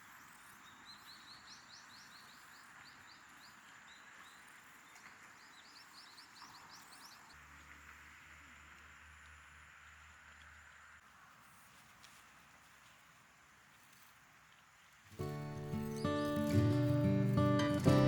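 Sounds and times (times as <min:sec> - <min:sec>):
stream water flowing: 0:15.1 - 0:18.0
songbird chirping: 0:15.2 - 0:18.0.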